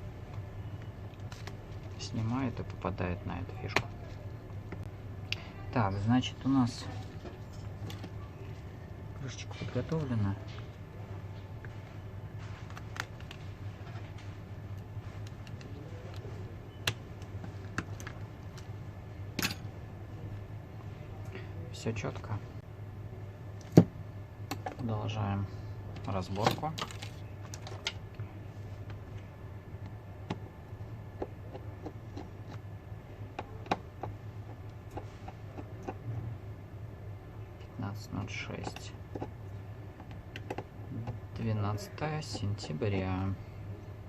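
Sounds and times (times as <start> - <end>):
low electrical hum: 0.0 - 44.0
tools clicking and tapping: 33.3 - 36.0, 38.6 - 39.4, 40.0 - 41.2.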